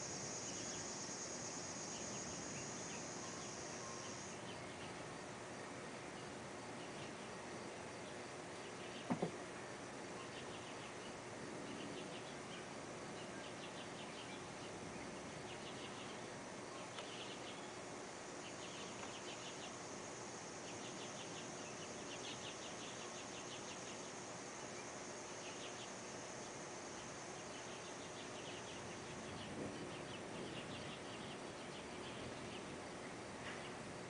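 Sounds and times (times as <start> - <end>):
faint high buzz: 0.0 - 34.0
insects chirping: 0.0 - 34.0
steady hiss: 0.0 - 34.0.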